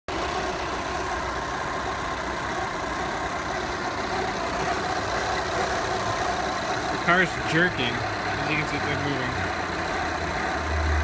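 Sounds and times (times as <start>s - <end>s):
diesel engine idling roughly: 0.1s - 11.0s.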